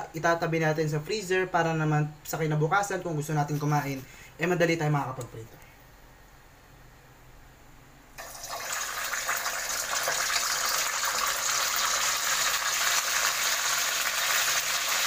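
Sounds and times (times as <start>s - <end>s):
dumplings sizzling in hot oil: 8.2s - 15.0s.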